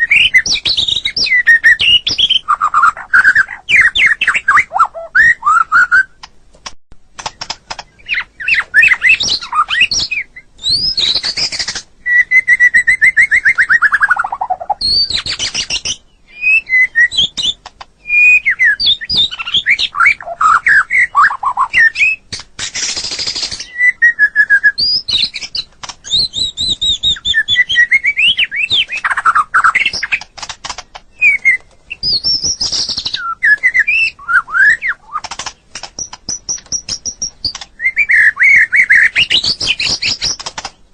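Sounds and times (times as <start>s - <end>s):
bird singing whistles and trills: 0.0s - 6.2s, 7.3s - 30.5s, 31.1s - 40.5s.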